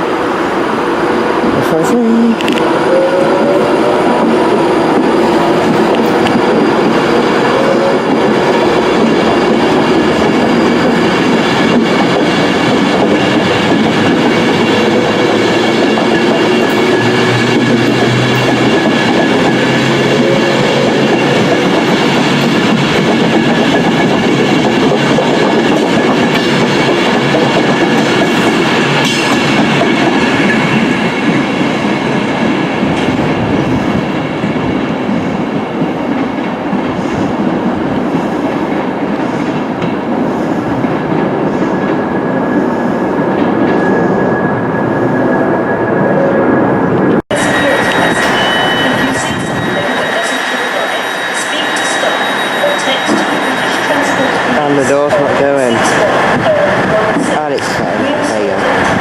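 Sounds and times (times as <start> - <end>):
train rumbling past: 0.0 - 59.0
whining tones: 2.4 - 31.5, 41.5 - 57.2.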